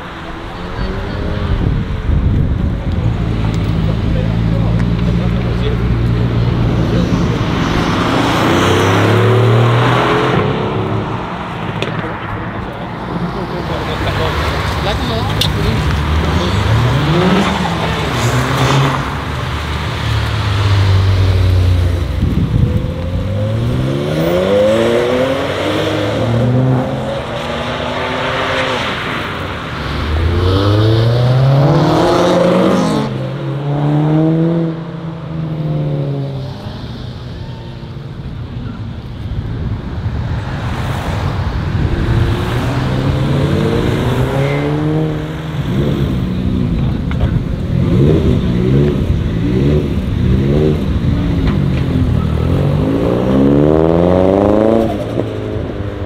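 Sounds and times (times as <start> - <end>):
cars accelerating hard: 0.0 - 56.0.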